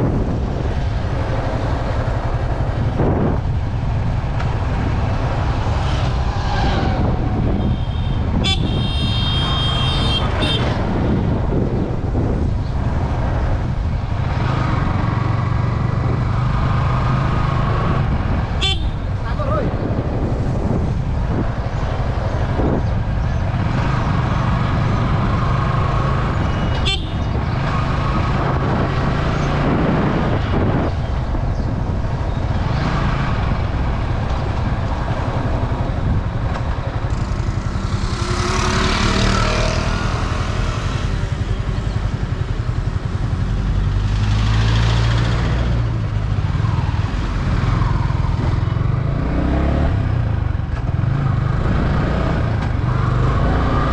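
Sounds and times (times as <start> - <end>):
road and wind noise: 0.0 - 53.9
vehicles passing: 0.0 - 53.9
motorcycle engine running: 35.2 - 44.0.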